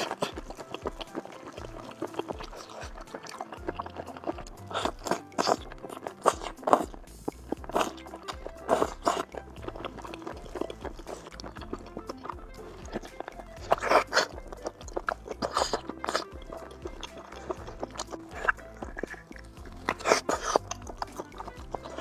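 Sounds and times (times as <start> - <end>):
background music: 0.0 - 22.0
crunching seafood while eating: 0.0 - 22.0.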